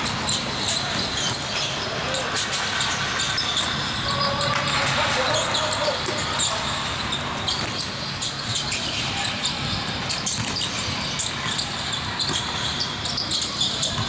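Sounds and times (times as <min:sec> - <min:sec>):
shoe squeaks: 0:00.0 - 0:14.0
basketball bouncing on court: 0:03.8 - 0:14.0.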